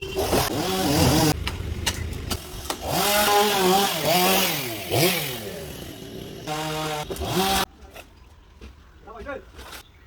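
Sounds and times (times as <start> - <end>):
chainsaw cutting wood: 0.0 - 7.7.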